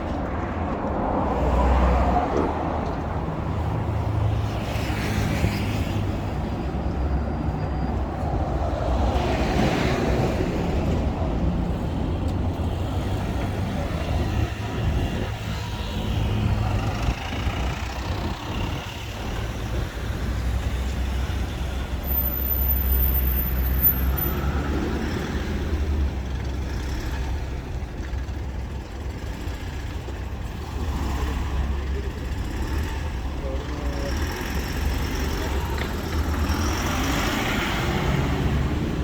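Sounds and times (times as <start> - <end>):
road traffic rumble: 0.0 - 39.0.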